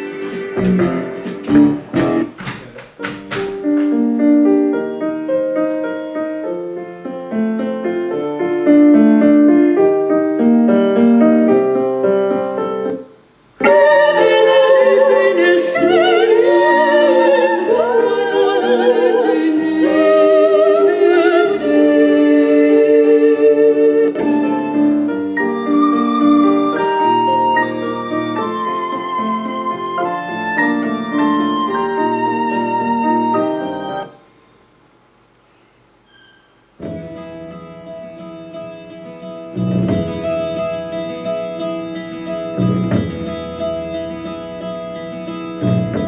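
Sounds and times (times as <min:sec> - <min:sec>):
piano melody: 0:00.0 - 0:02.4, 0:03.0 - 0:34.3, 0:36.8 - 0:46.0
person singing with vibrato: 0:13.6 - 0:25.1.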